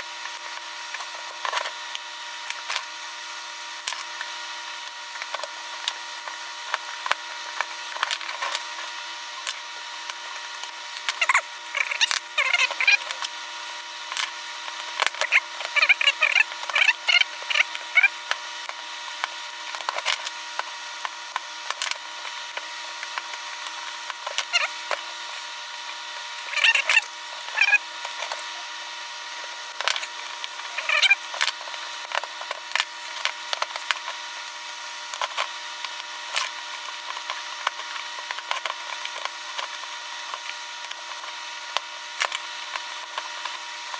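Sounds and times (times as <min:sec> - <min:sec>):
scraping and squeaking: 0:11.1 - 0:13.2, 0:15.1 - 0:18.1, 0:24.3 - 0:25.1, 0:26.4 - 0:27.8, 0:30.7 - 0:31.2.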